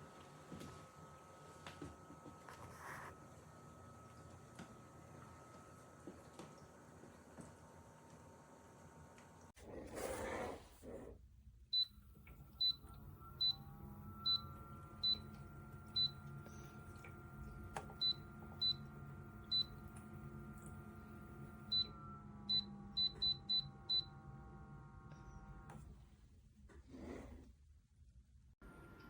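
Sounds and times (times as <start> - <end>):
fan motor humming: 12.0 - 25.8.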